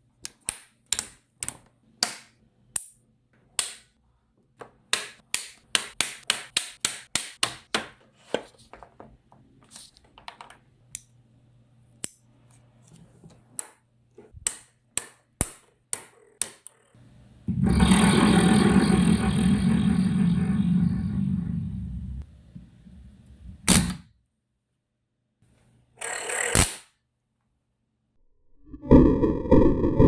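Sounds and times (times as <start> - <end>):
loud vibrating buzz: 17.5 - 22.2.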